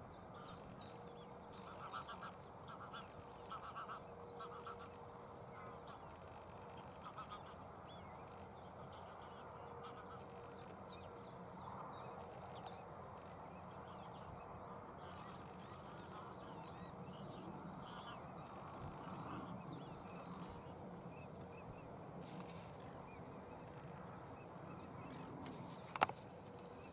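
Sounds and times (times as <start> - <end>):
birds chirping: 0.1 - 26.9
waterfowl calling: 1.6 - 6.1, 17.8 - 25.3.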